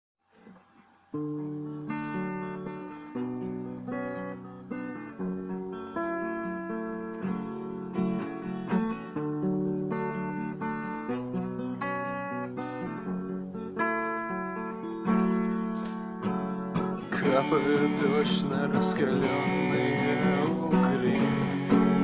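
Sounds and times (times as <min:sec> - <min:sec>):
acoustic guitar picked chords: 0:00.4 - 0:22.0.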